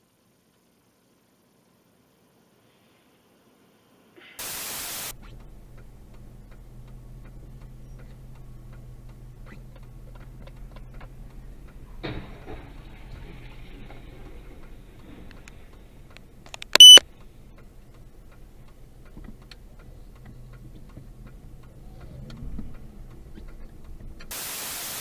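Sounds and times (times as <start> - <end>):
loud static hiss: 0.0 - 5.2, 24.3 - 25.0
faint ticks: 5.1 - 12.1, 14.2 - 24.4
noisy rattle: 5.1 - 24.4
vehicle engine humming: 5.1 - 24.4.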